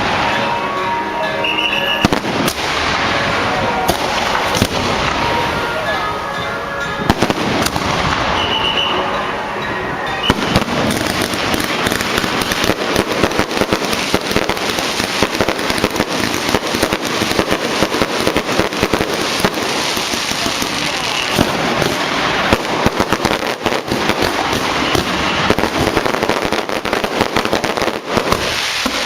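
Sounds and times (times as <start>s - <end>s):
firecrackers banging and crackling: 0.0s - 29.0s.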